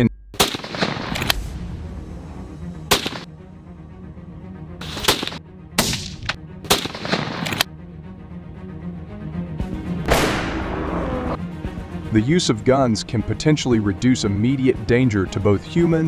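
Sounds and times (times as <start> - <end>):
background music: 0.0 - 16.0
gunshots: 0.4 - 1.5, 2.9 - 3.3, 4.8 - 7.7, 10.1 - 11.4.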